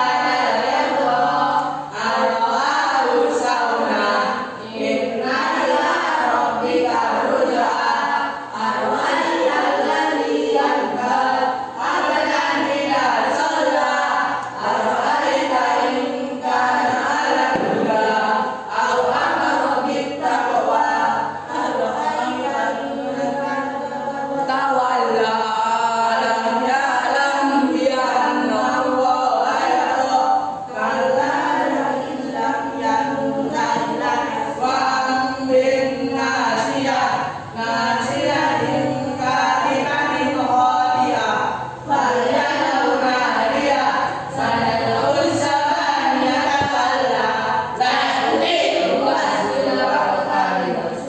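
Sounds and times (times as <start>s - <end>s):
group singing unaccompanied: 0.0s - 51.0s.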